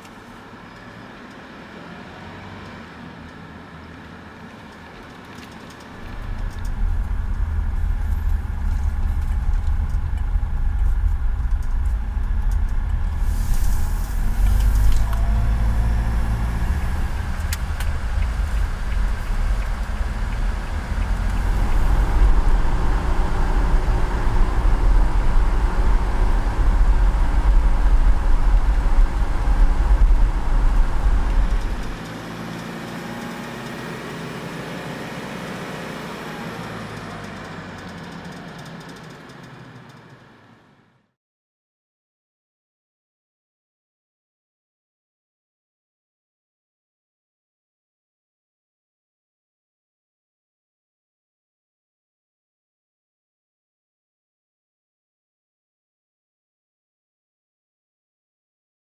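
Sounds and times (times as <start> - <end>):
vehicle engine and road noise: 0.0 - 41.1.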